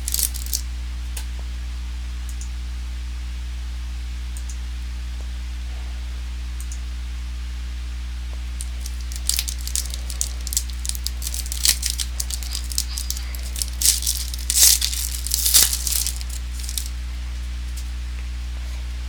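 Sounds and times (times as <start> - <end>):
card wrappers crinkling: 0.0 - 0.6, 8.6 - 17.0
low electrical hum: 0.0 - 5.6, 6.2 - 19.0.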